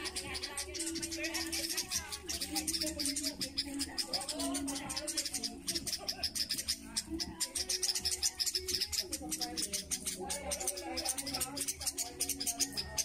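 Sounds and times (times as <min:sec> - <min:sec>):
small birds alarm chirping: 0:00.0 - 0:13.0.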